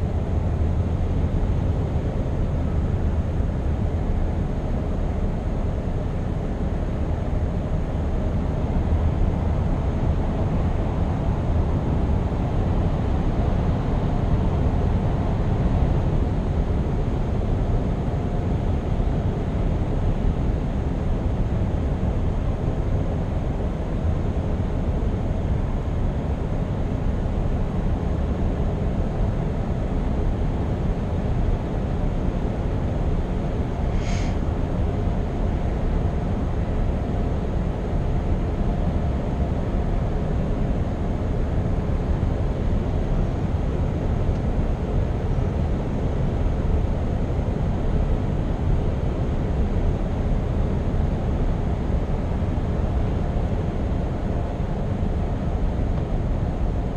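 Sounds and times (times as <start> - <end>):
road and tyre noise: 33.0 - 35.7.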